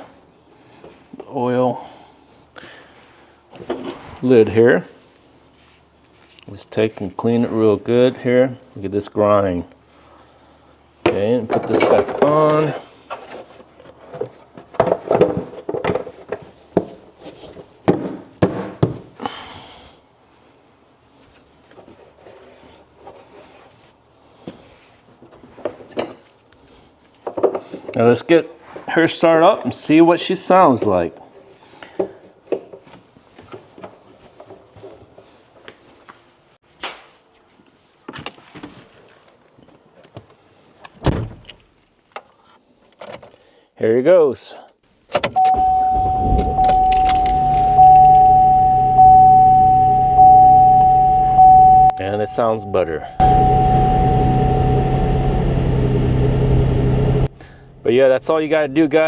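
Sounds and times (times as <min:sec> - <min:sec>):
faint handling sounds: 0:04.9 - 0:08.0
car door shutting: 0:45.2 - 0:51.9, 0:53.2 - 0:57.3.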